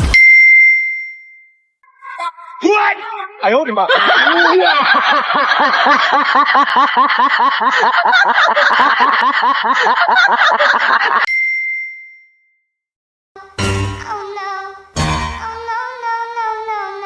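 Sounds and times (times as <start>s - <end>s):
short high ding: 0.0s - 1.7s, 11.3s - 12.6s
rapid rhythmic laughter: 3.7s - 11.3s.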